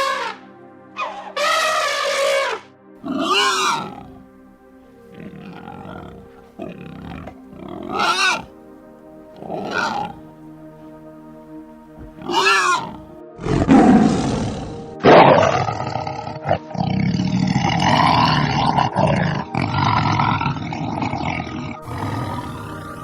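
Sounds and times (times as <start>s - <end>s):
large wild animal calling: 0.0s - 0.4s, 1.0s - 23.0s
background music: 0.0s - 23.0s.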